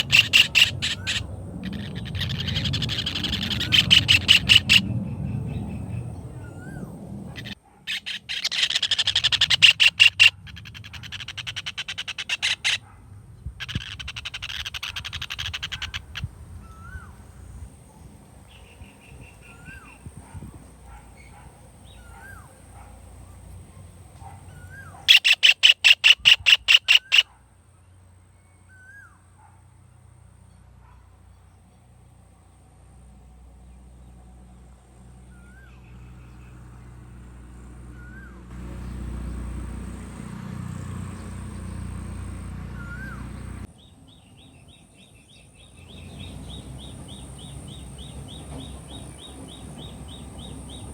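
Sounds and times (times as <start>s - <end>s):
kingfisher rattling calls: 0.0s - 6.7s, 7.3s - 12.9s, 13.6s - 17.0s, 24.7s - 27.4s.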